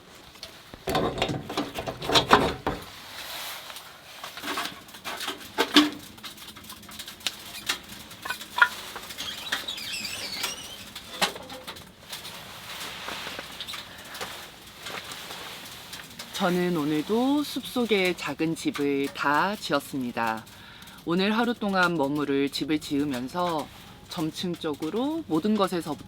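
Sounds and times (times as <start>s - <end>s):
camp gear knocking and clattering: 0.0s - 3.0s, 4.3s - 20.5s.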